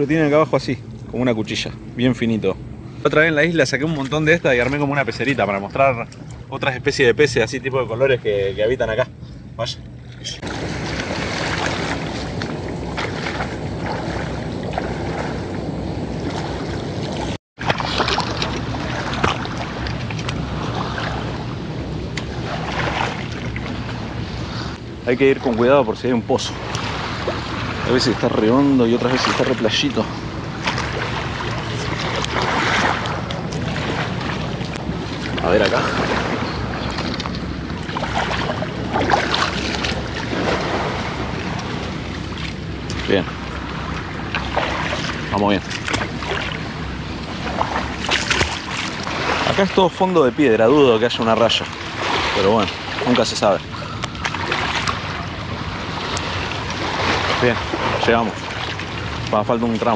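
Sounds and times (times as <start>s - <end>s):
water sloshing and splashing: 0.0s - 59.9s
feet wading through water: 2.8s - 6.7s, 9.3s - 59.9s
wind noise on microphone: 9.1s - 49.6s.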